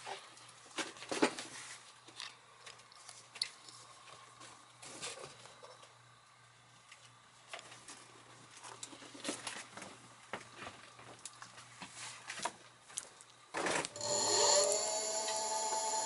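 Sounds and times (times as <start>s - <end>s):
faint hum with high tone: 13.9s - 16.0s.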